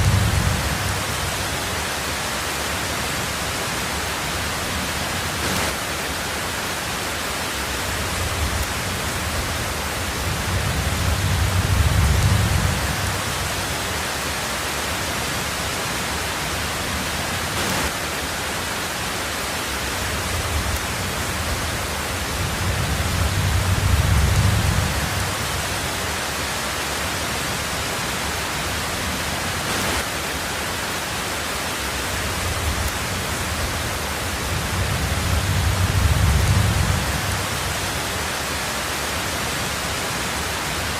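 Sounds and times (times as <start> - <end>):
low rumbles of thunder: 0.0 - 1.6, 7.9 - 13.8, 20.2 - 25.8, 32.3 - 38.1
heavy rain on a tin roof: 0.0 - 40.9.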